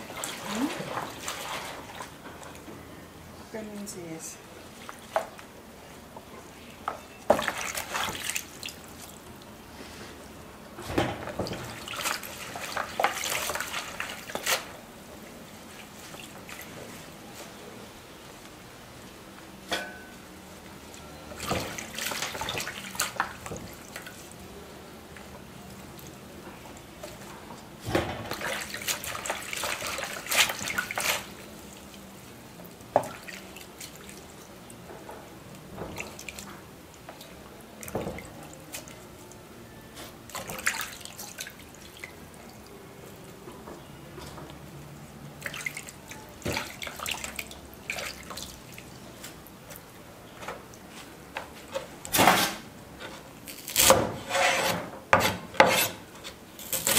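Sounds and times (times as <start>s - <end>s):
water splashing and dripping: 0.0s - 2.6s, 7.3s - 9.5s, 11.4s - 14.7s, 21.4s - 24.4s, 28.2s - 32.1s, 32.7s - 34.4s, 40.3s - 42.8s, 45.4s - 49.9s.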